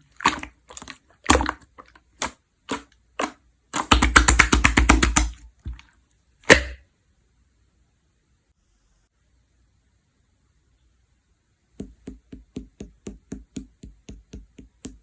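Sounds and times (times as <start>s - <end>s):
slime squeezed with wet clicks: 0.2s - 5.8s.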